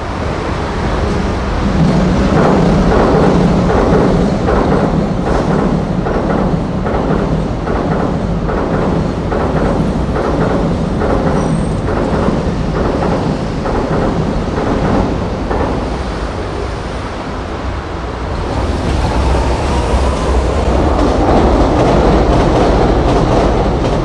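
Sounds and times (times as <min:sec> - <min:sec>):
train wheels clacking over rail joints: 0:00.9 - 0:17.0, 0:18.3 - 0:24.0.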